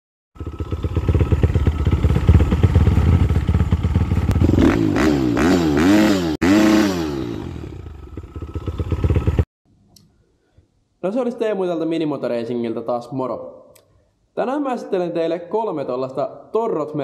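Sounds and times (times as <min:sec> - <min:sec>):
motorcycle engine revving: 0:00.4 - 0:09.5.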